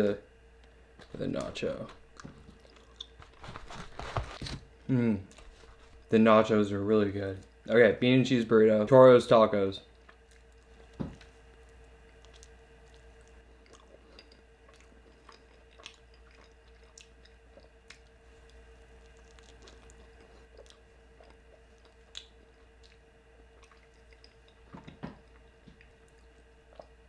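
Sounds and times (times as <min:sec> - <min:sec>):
chewing food: 0:01.0 - 0:04.6, 0:05.3 - 0:06.1, 0:09.9 - 0:27.0.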